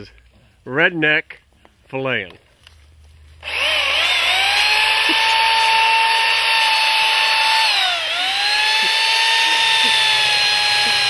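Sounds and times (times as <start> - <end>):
chainsaw running at high speed: 3.4 - 11.0.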